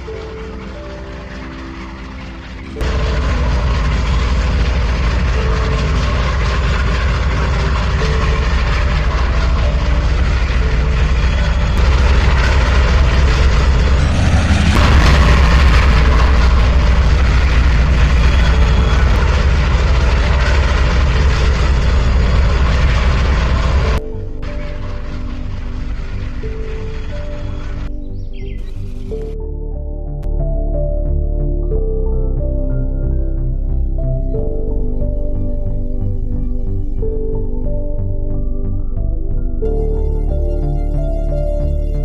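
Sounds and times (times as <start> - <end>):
diesel engine rumbling: 0.0 - 30.6.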